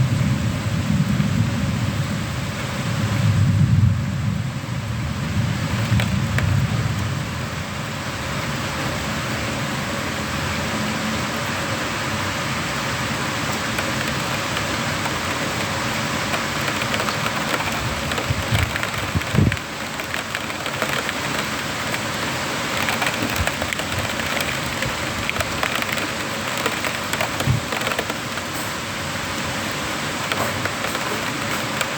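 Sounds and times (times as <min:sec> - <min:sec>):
heavy rain falling: 0:00.0 - 0:31.9
thunder rolling: 0:13.5 - 0:28.7.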